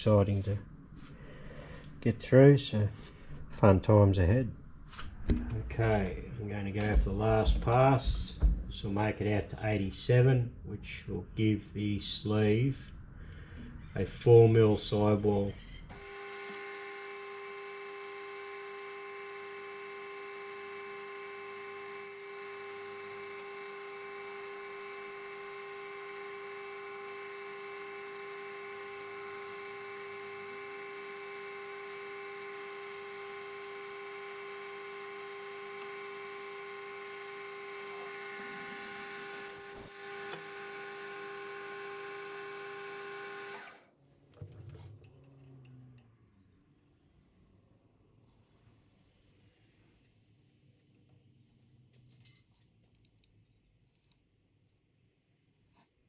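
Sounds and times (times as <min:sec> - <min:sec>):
metal lathe whining: 0:15.9 - 0:43.8.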